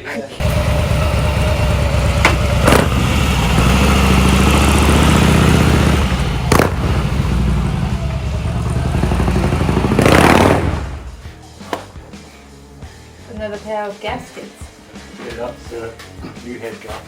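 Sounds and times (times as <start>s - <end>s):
motorcycle engine running: 0.4s - 11.5s.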